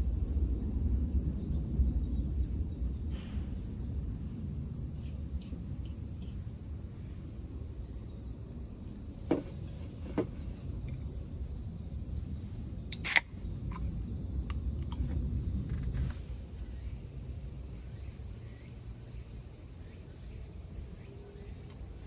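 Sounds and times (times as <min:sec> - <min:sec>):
high insect drone: 0:00.0 - 0:22.0
light knocks: 0:09.3 - 0:10.5
sharp click: 0:12.9 - 0:13.8.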